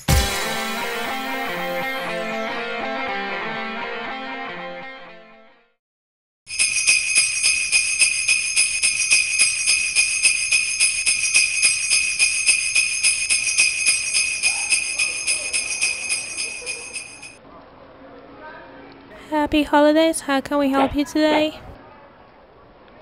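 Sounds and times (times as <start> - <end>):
sleigh bells shaken: 6.5 - 17.4.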